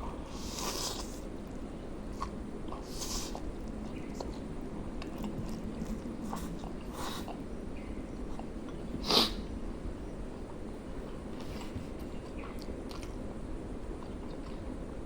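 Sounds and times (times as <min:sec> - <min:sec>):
low background noise: 0:00.0 - 0:15.0
person chewing noodles: 0:00.3 - 0:07.5, 0:11.0 - 0:14.9
short breathy hisses: 0:09.0 - 0:09.4.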